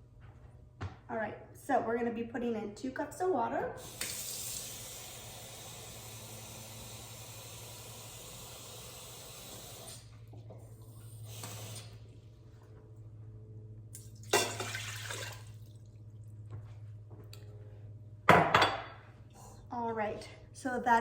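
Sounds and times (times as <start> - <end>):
steady low hum: 0.0 - 21.0
kitchen tap running: 3.8 - 10.0, 14.2 - 15.6
water poured into pot: 14.0 - 15.9.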